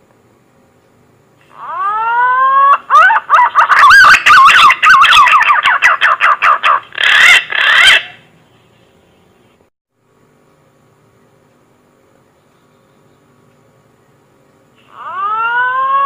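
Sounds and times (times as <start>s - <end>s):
pigeon call whistles: 1.6s - 8.2s.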